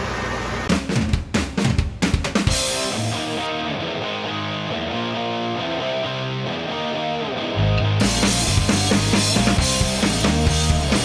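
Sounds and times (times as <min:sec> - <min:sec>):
drum kit fill: 0:00.7 - 0:03.6, 0:08.0 - 0:11.0.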